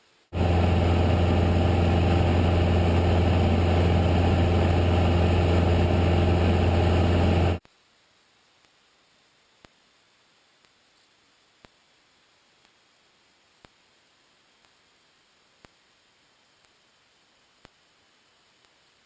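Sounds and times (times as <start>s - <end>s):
aircraft engine and propeller drone: 0.4s - 7.6s.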